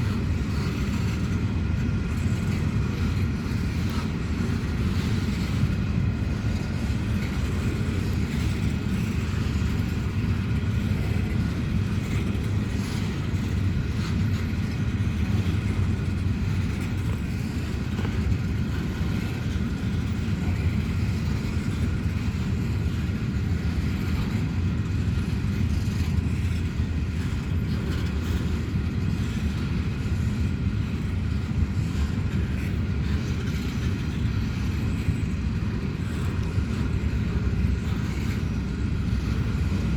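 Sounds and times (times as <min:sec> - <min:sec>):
train rumbling: 0:00.0 - 0:39.9.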